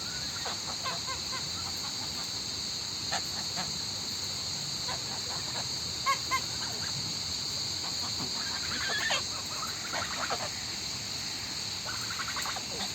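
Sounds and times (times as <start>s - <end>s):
steady high-pitched hiss: 0.0s - 12.9s
waterfowl honking and chattering: 0.1s - 2.3s, 4.9s - 6.9s, 7.8s - 10.6s, 11.8s - 12.9s.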